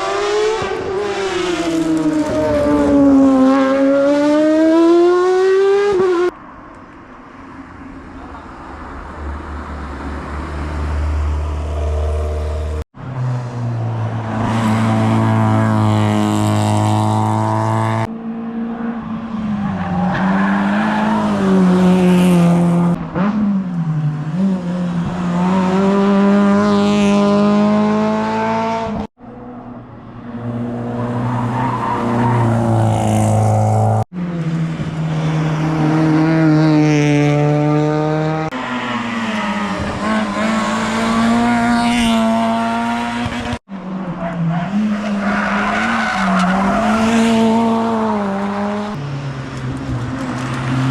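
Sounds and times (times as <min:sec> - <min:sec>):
rally cars revving past: 0:10.2 - 0:29.6, 0:30.2 - 0:50.9.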